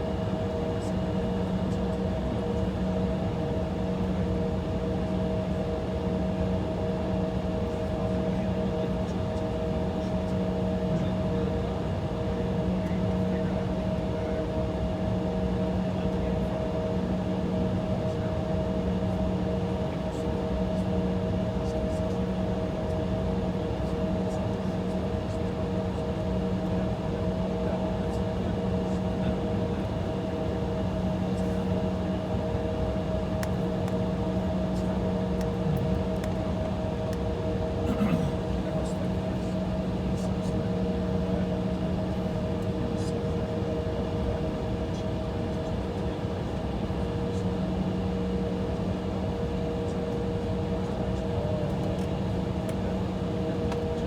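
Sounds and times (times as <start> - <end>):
jet engines idling in cabin: 0.0 - 54.0
steady humming tones: 26.7 - 54.0.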